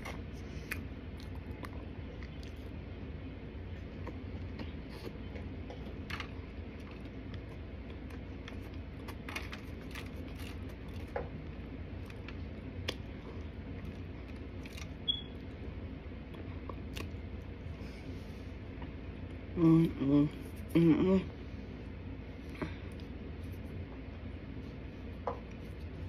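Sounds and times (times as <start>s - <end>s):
steady low hum: 0.0s - 26.0s
chewing crunches: 3.8s - 15.6s, 16.2s - 17.6s.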